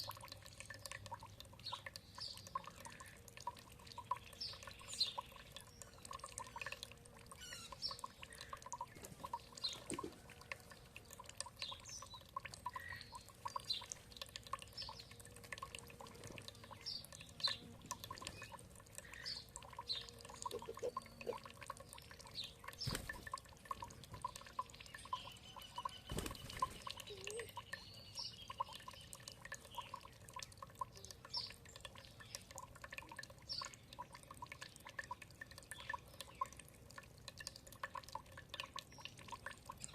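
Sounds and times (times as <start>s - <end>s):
small birds chirping: 0.0s - 36.7s
water dripping and trickling: 0.0s - 39.9s.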